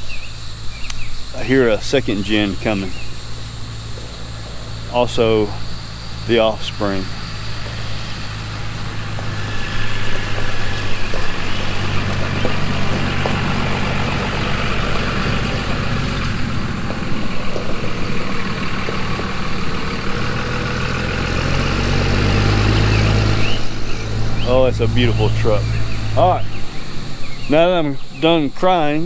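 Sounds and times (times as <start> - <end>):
truck engine approaching: 0.0 - 29.0.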